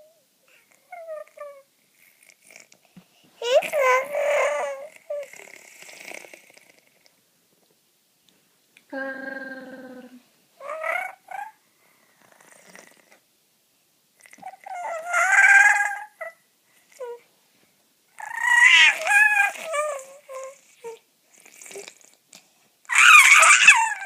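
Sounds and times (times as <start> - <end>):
rasping vocal calls: 8.9 - 11.6, 14.3 - 16.4, 18.2 - 22.1, 22.9 - 24.0.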